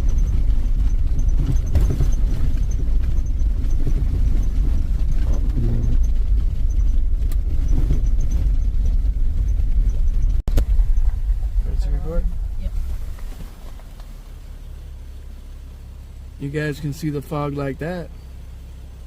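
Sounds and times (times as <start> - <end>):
vehicle bumping: 0.0 - 15.0
engine and tyre rumble: 0.0 - 19.0.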